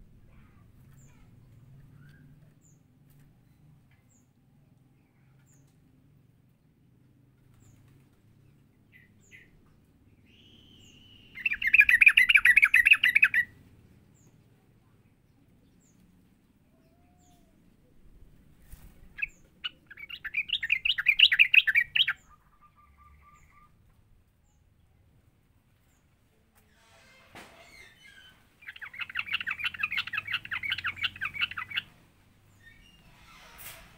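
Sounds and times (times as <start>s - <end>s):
bird song rapid repeated notes: 10.8s - 13.5s, 19.2s - 23.6s, 28.6s - 31.9s.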